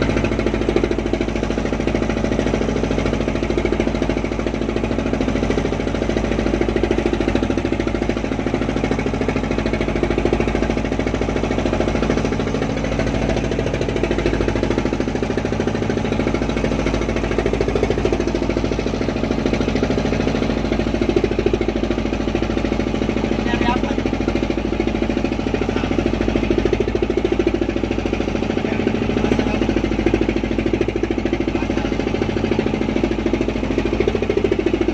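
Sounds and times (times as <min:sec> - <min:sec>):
boat engine running: 0:00.0 - 0:34.9.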